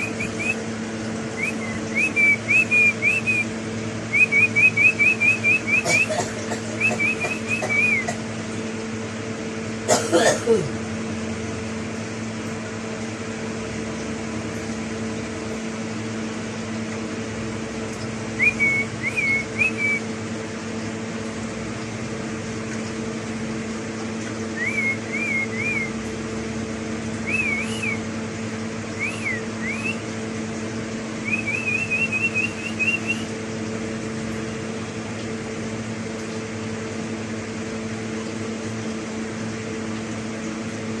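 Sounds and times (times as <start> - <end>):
parrot whistling: 0.0 - 0.6, 1.4 - 3.5, 4.1 - 6.1, 6.8 - 8.1, 18.4 - 20.0, 24.6 - 25.9, 27.2 - 28.0, 29.0 - 30.0, 31.2 - 33.3
steady low hum: 0.0 - 41.0.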